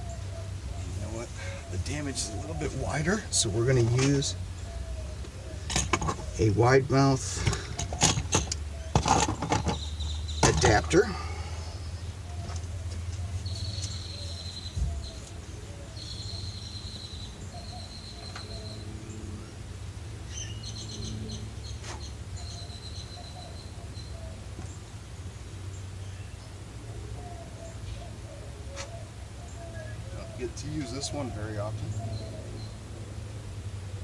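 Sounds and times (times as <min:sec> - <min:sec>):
high chirping trills: 0:11.6 - 0:19.4.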